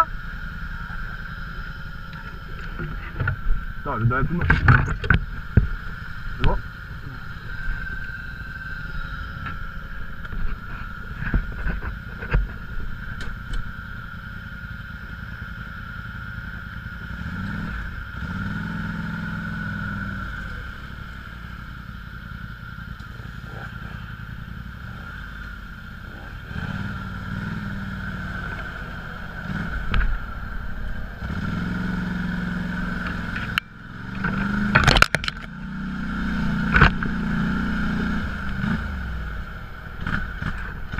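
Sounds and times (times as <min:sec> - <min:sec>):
off-road vehicle engine revving: 0:00.0 - 0:40.9
knocks and rattles: 0:04.4 - 0:05.7.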